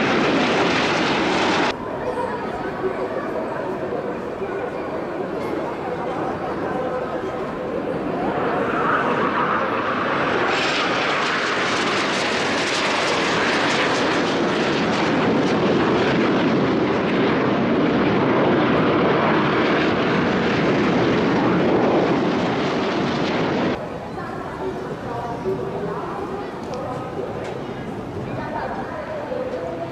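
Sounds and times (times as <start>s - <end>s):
jet planes flying past: 0.0s - 2.2s, 2.8s - 29.9s.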